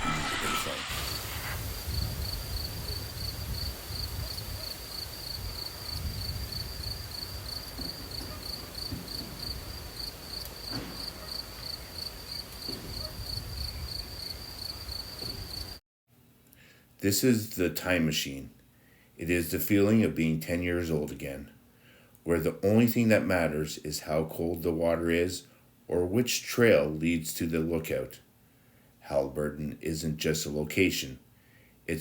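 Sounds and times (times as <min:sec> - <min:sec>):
low rumble: 0:00.0 - 0:03.6
cricket chirping: 0:01.7 - 0:15.8.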